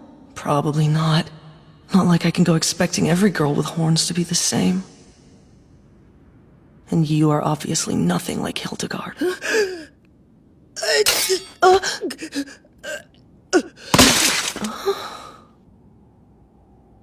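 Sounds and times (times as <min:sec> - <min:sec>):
person gasping: 0:11.8 - 0:15.5.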